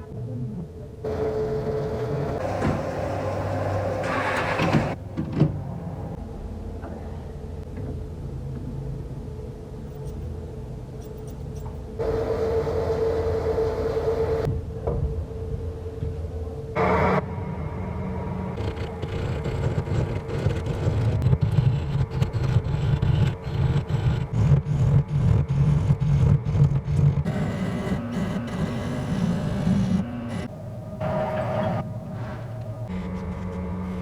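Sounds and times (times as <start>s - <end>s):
power tool motor humming: 27.3s - 32.6s.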